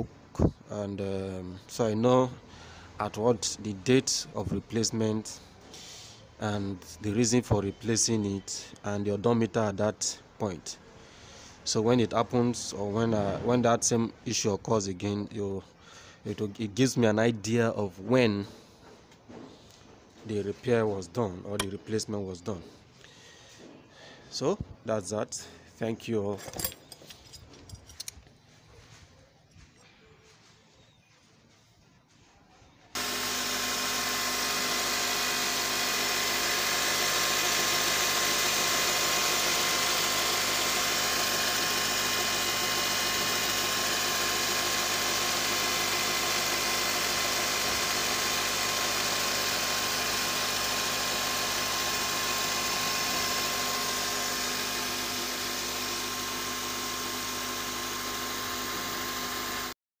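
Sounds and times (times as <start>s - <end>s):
car engine idling: 33.0s - 59.2s
mechanical belt whir: 33.0s - 59.8s.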